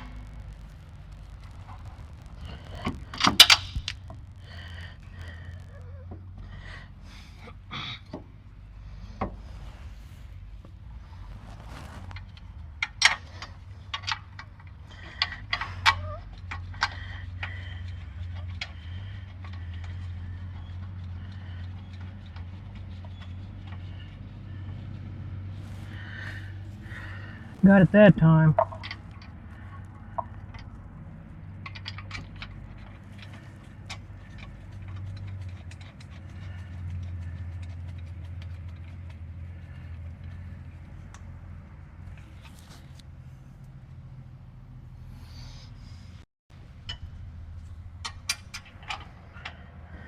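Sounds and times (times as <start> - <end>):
steady low hum: 0.0 - 50.0
metal clicks and knocks of tools: 48.0 - 49.6.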